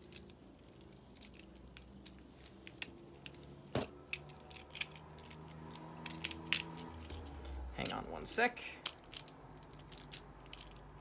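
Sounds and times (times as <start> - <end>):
plastic toy parts clicking: 4.1 - 7.3.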